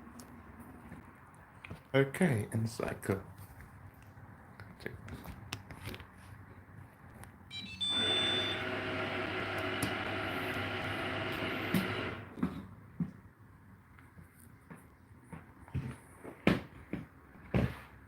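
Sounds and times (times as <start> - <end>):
dishwasher electronic beeps: 7.5 - 10.0
dishwasher motor hum: 7.8 - 12.6.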